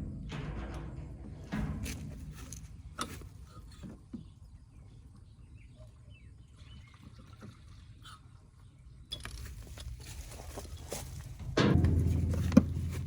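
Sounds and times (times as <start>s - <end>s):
tractor engine rumbling: 0.0s - 5.6s, 9.1s - 13.0s.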